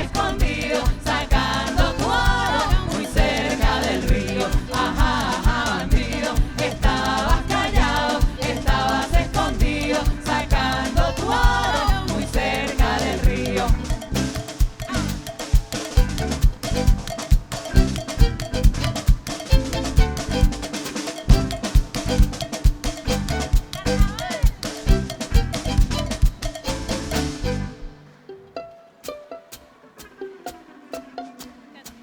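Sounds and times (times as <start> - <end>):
people singing: 0.0 - 15.6
percussion rhythm: 0.0 - 28.1, 29.0 - 32.0
live band playing: 0.0 - 32.0.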